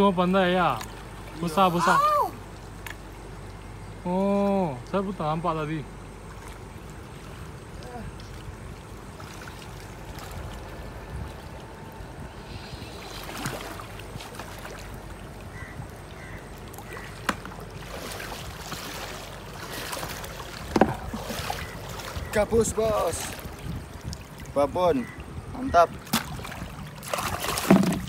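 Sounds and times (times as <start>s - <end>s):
water sloshing and splashing: 0.0s - 28.0s
sharp knocks: 27.6s - 28.0s.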